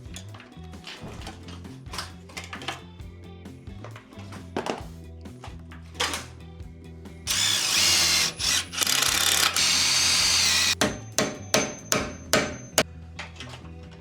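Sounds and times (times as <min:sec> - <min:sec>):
background music with steady beat: 0:00.0 - 0:14.0
power drill whining: 0:07.3 - 0:10.8.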